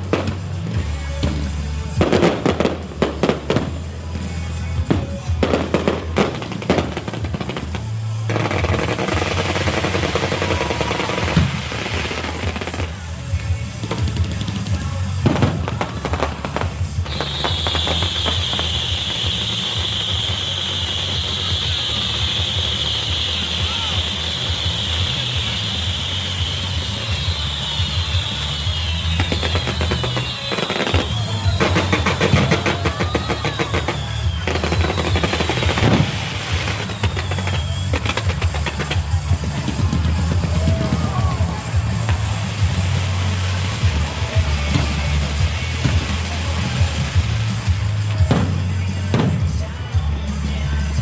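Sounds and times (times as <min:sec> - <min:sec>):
firecrackers crackling: 0:00.0 - 0:51.0
music with drums: 0:00.0 - 0:51.0
high steady whistle: 0:17.1 - 0:38.4.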